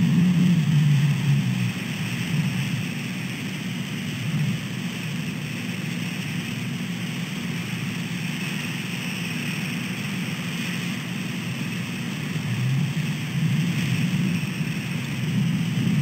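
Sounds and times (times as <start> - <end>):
wind noise on microphone: 0.0 - 5.4, 11.4 - 16.0
rain: 0.0 - 16.0.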